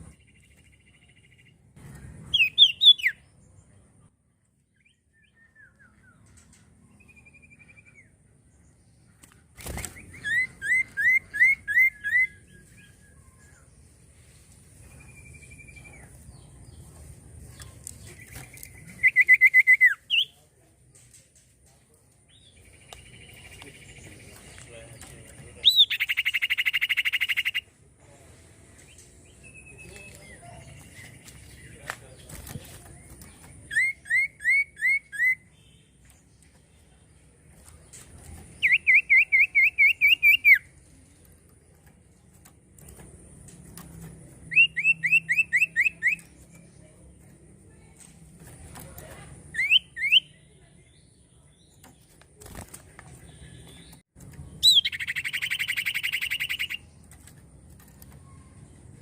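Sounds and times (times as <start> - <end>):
bird whistling song: 2.2 - 3.3, 4.7 - 6.3, 9.8 - 13.6, 18.5 - 20.4, 25.6 - 27.7, 33.7 - 35.9, 38.6 - 40.7, 44.5 - 46.4, 49.5 - 50.5, 54.6 - 56.8
fainter bird trill: 9.7 - 13.6, 25.6 - 27.8, 38.5 - 40.9, 53.2 - 57.0
bird trilled whistle: 54.6 - 56.8.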